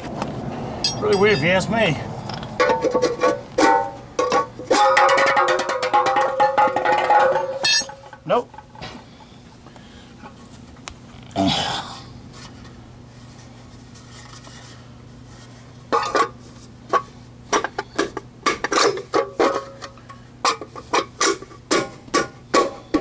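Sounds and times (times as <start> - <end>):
hubcap rattling and clinking: 0.8 - 8.8.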